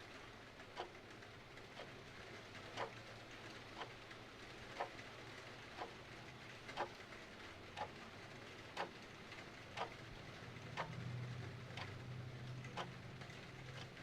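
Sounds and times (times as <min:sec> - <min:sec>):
clock ticking: 0:02.7 - 0:03.0, 0:04.7 - 0:05.0, 0:05.7 - 0:07.0, 0:07.8 - 0:08.0, 0:08.7 - 0:09.0, 0:09.8 - 0:10.0, 0:10.7 - 0:11.1, 0:11.7 - 0:14.0.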